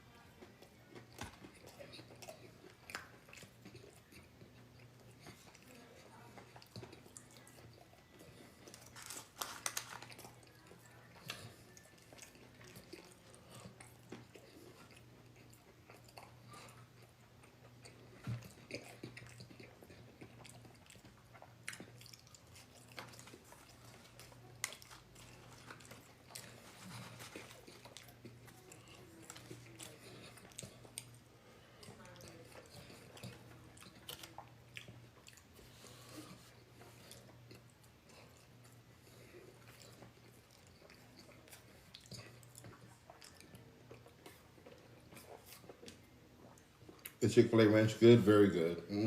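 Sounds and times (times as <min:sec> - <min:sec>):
person chewing food: 0:00.1 - 0:47.2.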